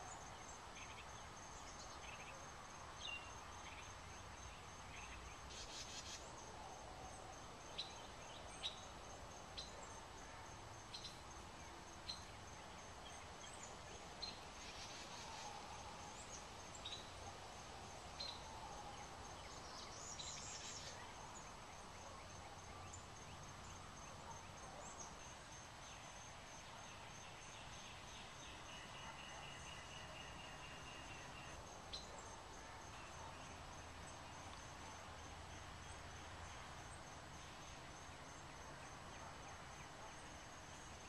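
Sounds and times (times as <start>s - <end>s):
steady background hiss: 0.0s - 41.0s.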